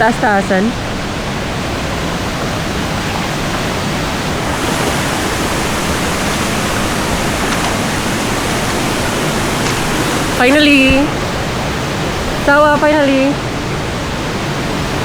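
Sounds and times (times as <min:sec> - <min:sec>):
waterfall rushing: 0:04.3 - 0:11.1.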